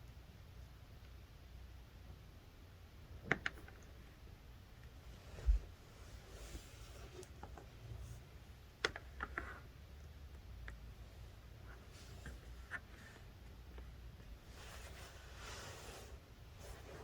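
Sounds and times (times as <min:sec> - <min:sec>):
faint light scratching: 0:14.4 - 0:17.0.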